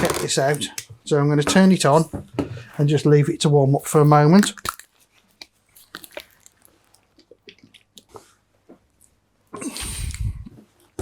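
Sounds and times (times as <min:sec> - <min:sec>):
small handling noises: 0:00.0 - 0:09.2.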